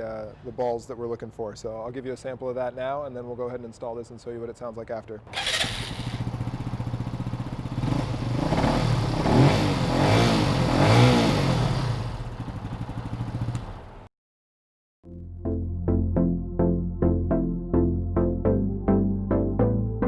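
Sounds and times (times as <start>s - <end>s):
mini bike engine revving: 5.3s - 13.6s.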